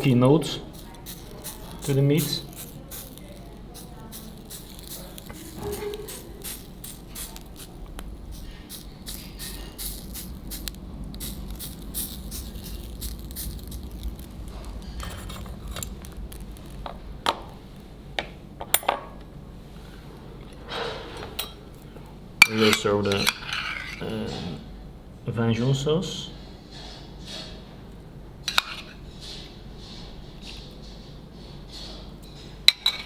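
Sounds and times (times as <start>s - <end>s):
squid sizzling on a grill: 0.6s - 15.0s
tableware clinking: 5.3s - 6.4s, 20.7s - 21.8s, 22.4s - 24.4s, 32.3s - 33.0s.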